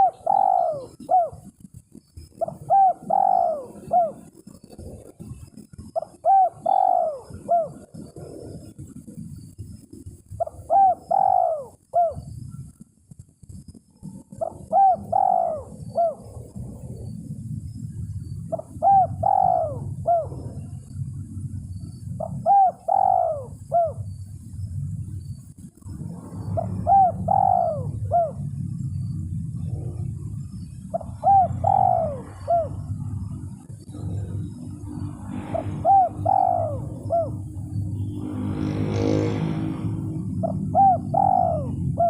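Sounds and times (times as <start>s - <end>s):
dove cooing: 0.0s - 9.3s, 10.3s - 12.8s, 13.8s - 24.2s, 26.4s - 28.8s, 30.7s - 42.0s
low rumble: 15.6s - 42.0s.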